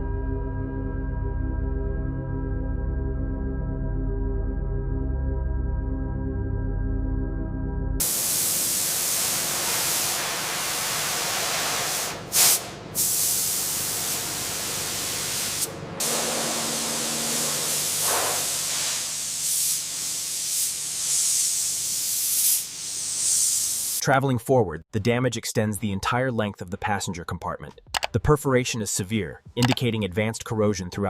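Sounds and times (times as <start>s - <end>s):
air nozzle hissing spray: 8.0s - 24.0s.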